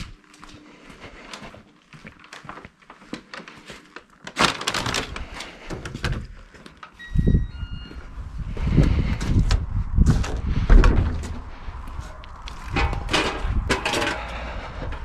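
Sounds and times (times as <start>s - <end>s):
wind buffeting microphone: 7.1s - 15.0s.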